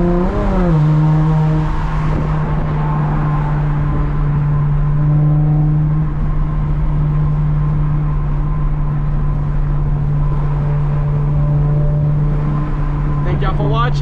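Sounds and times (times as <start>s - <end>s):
car engine droning: 0.0s - 14.0s.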